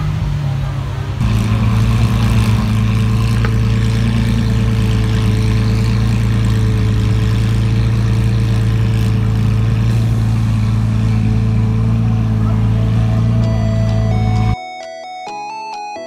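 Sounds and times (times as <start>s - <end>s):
car engine idling: 0.0s - 14.6s.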